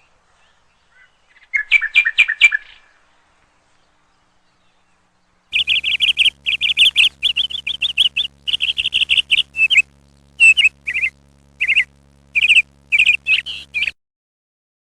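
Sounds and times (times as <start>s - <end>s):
faint low hum: 2.9s - 14.0s
bird chirping: 3.8s - 14.0s.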